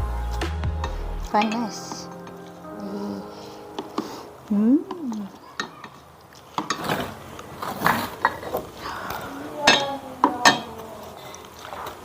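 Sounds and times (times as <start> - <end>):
cutlery and dishes clinking: 1.3 - 2.6, 5.0 - 8.7, 9.6 - 10.9.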